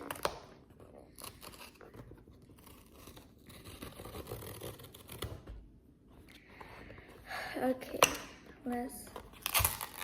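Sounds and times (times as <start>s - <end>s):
packaging scratching and tearing: 1.0s - 5.3s, 9.4s - 10.0s.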